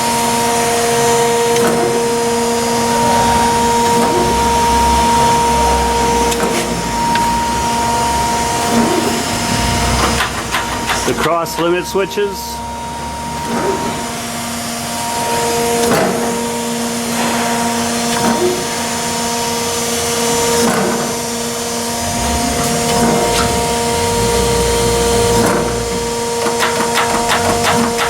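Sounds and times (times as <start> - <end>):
surface grinder humming: 1.4 - 15.8, 20.0 - 28.0
run of clicks: 10.0 - 11.3, 26.4 - 28.0
machine table knocking: 10.0 - 11.4, 22.0 - 28.0.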